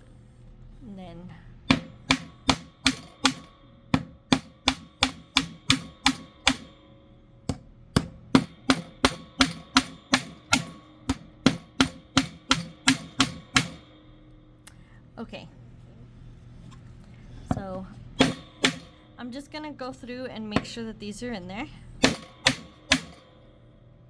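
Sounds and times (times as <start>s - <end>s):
hammer tapping nails into wood: 1.7s - 6.7s.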